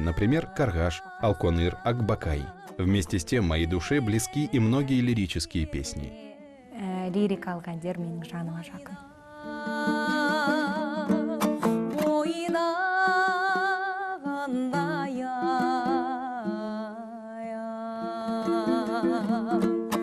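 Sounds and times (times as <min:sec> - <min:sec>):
plucked string accompaniment: 0:00.0 - 0:06.1, 0:09.4 - 0:20.0
woman singing with vibrato: 0:05.6 - 0:19.8.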